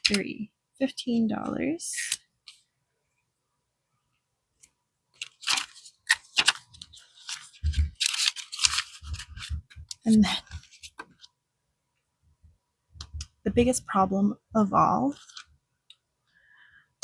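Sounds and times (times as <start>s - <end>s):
paper and plastic rustling: 5.2s - 11.3s, 15.1s - 15.6s.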